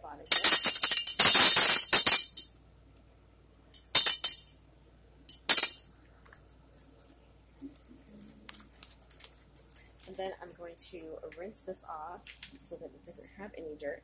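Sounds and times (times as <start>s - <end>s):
small rocks clattering into glass jar: 0.3s - 2.5s, 7.7s - 10.6s.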